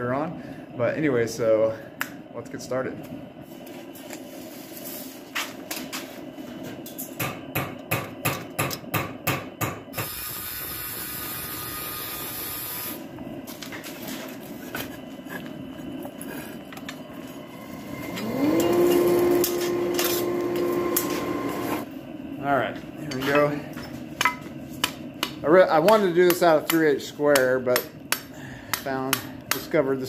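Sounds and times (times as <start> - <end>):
motor winding up to a hum: 10.0 - 13.0, 17.6 - 21.8.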